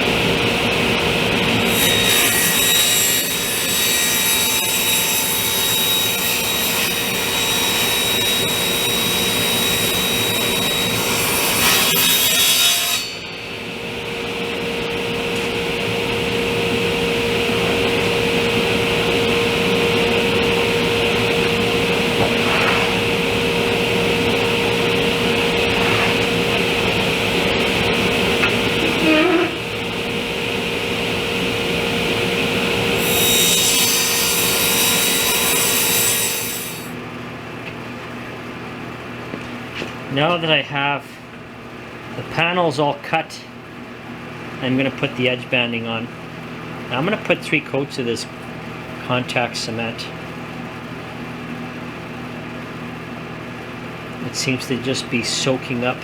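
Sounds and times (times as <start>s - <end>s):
table saw cutting wood: 0.0s - 37.0s
table saw running idle: 0.4s - 37.0s.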